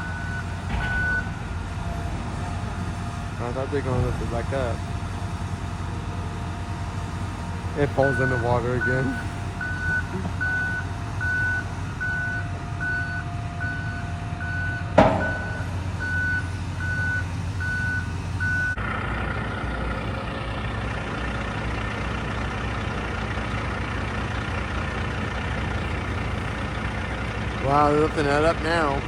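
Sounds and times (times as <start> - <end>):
backup alarm beeping: 0.0 - 1.4, 7.9 - 18.8
diesel engine rumble: 0.0 - 29.0
sharp bang: 15.0 - 15.8.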